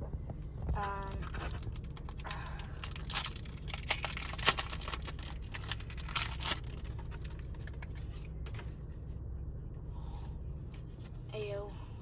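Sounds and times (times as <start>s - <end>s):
foil pack tearing and crinkling: 1.1s - 8.0s.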